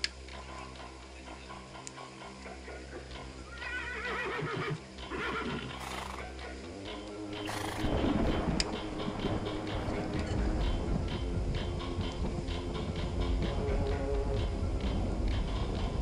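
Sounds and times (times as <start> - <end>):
horse whinnying: 3.5 - 6.3, 7.4 - 8.0
steady low hum: 5.7 - 16.0.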